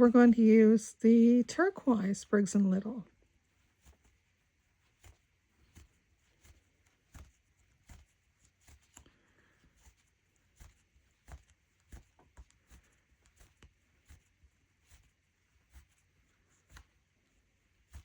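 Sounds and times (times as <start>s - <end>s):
rug hook clicking through cloth: 3.7s - 17.2s.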